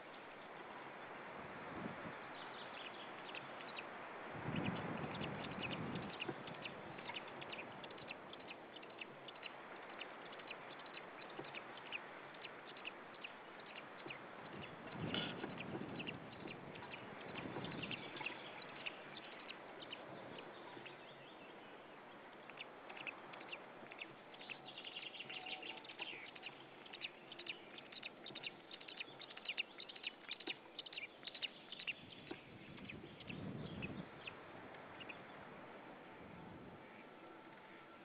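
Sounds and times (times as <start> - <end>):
steady outdoor hiss: 0.0 - 38.0
high bird chirps: 22.6 - 34.4.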